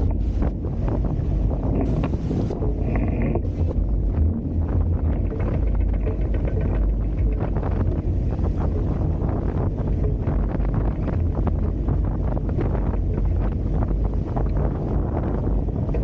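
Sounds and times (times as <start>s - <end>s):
water splashing along boat hulls: 0.0s - 16.0s
wind buffeting microphone: 0.0s - 16.0s.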